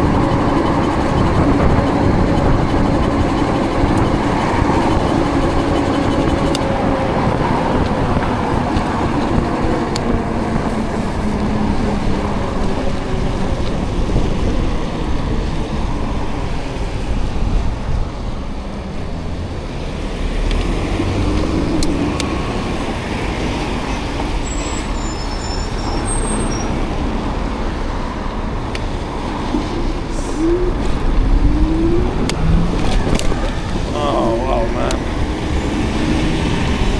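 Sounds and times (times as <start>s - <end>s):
road traffic passing: 0.0s - 36.9s
low rumble on microphone: 29.6s - 36.9s.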